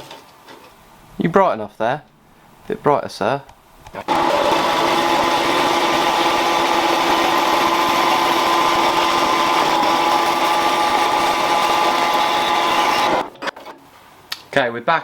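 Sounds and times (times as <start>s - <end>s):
power saw cutting metal: 4.1s - 13.5s.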